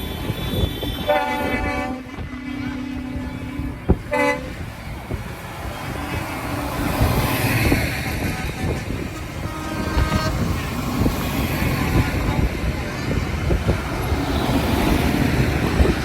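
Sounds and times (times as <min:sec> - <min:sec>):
vehicle horns tooting: 0:00.0 - 0:04.7, 0:07.9 - 0:10.7
tractor engines running: 0:00.0 - 0:16.0.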